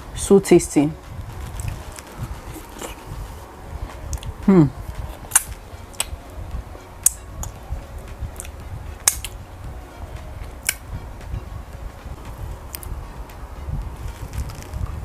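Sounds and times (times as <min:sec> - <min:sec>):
low steady rumble: 0:00.0 - 0:15.0
wet eating clicks and smacks: 0:04.1 - 0:04.4, 0:05.3 - 0:06.2, 0:08.4 - 0:09.4.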